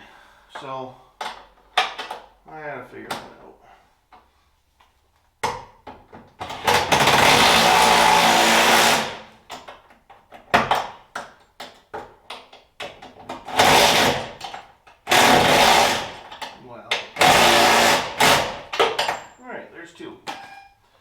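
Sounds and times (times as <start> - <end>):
power tool driving bolts: 6.4 - 9.7, 13.3 - 19.4.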